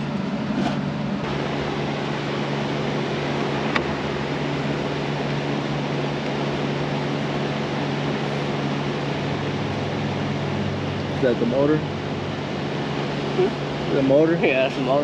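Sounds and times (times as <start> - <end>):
fan whirring hum: 0.0 - 15.0.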